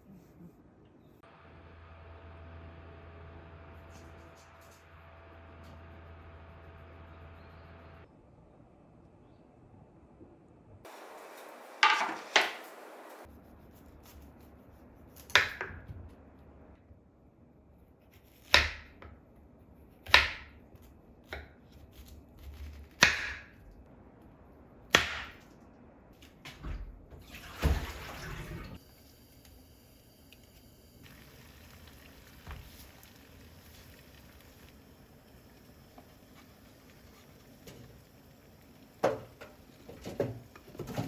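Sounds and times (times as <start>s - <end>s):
sharp knocks: 10.9s - 13.2s.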